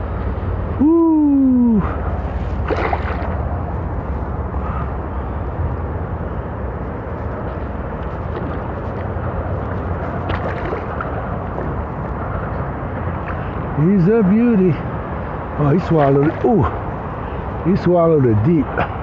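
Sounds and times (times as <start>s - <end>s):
steady low rumble: 0.0s - 13.9s
light water splashes: 1.6s - 3.9s, 7.9s - 12.4s
water sloshing around a kayak: 2.0s - 4.8s, 7.9s - 12.5s.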